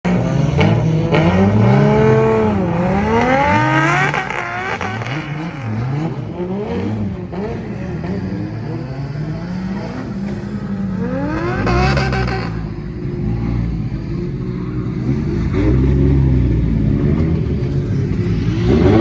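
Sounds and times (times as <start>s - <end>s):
car engine revving: 0.1s - 19.0s.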